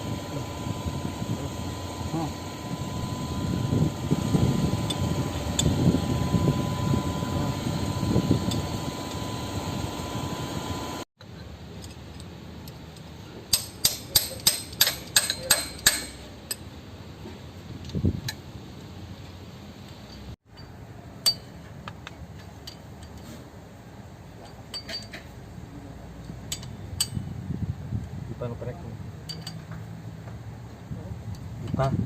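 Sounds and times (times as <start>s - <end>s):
low mechanical rumble: 0.0s - 32.0s
hand tools clicking on metal: 11.8s - 16.6s, 26.2s - 27.2s.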